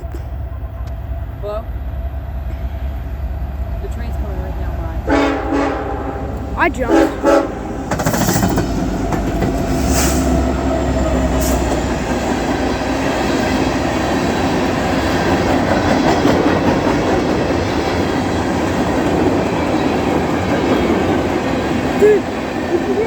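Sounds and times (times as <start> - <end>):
locomotive drone: 0.0 - 23.0
train cars rumbling and rattling: 0.0 - 23.0
sharp clacks on rail: 7.9 - 10.5.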